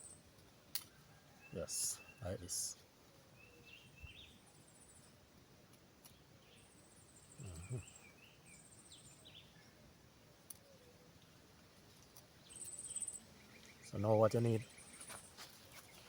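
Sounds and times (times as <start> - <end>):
small birds chirping: 0.0 - 16.0
insect trilling: 7.2 - 8.0.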